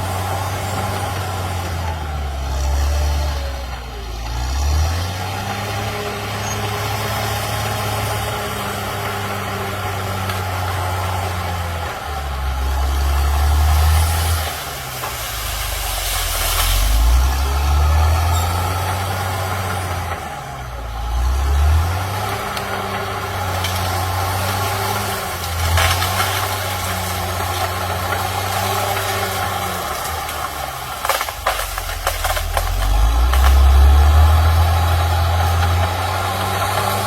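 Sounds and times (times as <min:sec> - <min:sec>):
bulldozer diesel engine running: 0:00.0 - 0:37.0
sharp cracks: 0:22.3 - 0:37.0.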